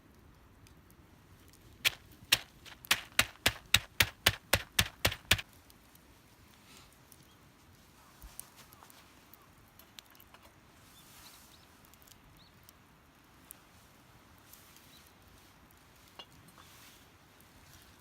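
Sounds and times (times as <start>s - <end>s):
sharp knocks: 1.9s - 5.4s.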